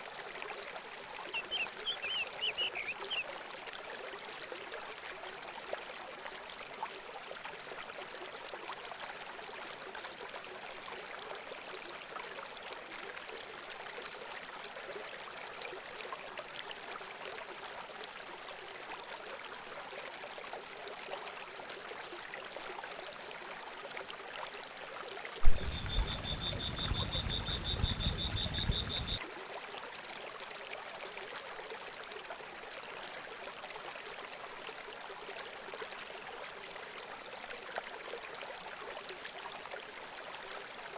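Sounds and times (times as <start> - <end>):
trickling water: 0.0 - 40.9
loud thump: 25.4 - 28.1
low rumble: 25.4 - 29.2.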